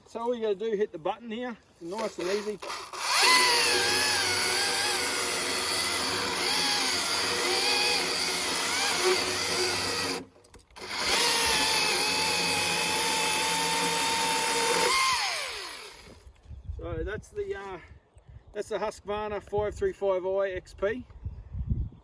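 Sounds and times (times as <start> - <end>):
electric chainsaw cutting log: 1.9 - 16.3.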